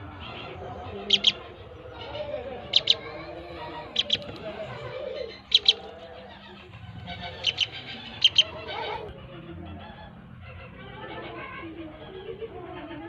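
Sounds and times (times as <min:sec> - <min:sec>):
chicks peeping: 0:00.0 - 0:10.1.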